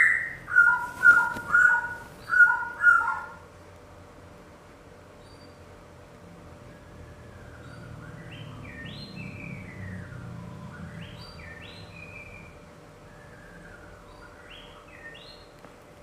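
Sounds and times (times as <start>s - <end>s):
bird whistled calls: 0.0s - 3.4s, 6.7s - 15.5s.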